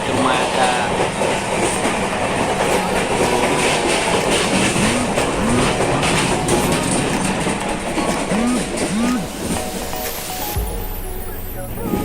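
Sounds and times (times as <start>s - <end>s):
wheels clacking over rails: 0.0s - 10.2s
train rumble: 0.0s - 10.7s
rising-and-falling tones: 8.3s - 9.5s.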